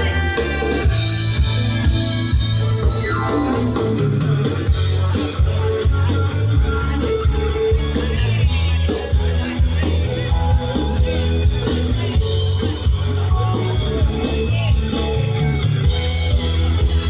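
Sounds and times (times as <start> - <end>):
loud music with guitar and bass: 0.0 - 17.0.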